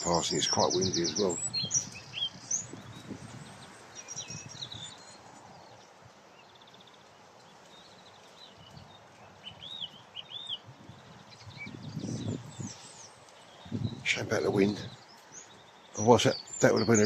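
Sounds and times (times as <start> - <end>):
wind on microphone: 0.0 - 6.2, 8.5 - 15.1.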